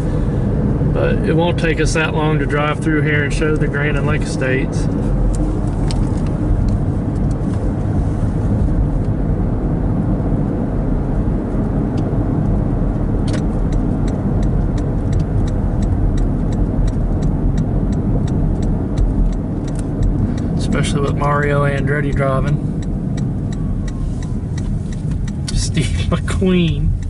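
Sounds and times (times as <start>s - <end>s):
car road and engine rumble: 0.0s - 27.0s
light regular ticking: 13.3s - 27.0s.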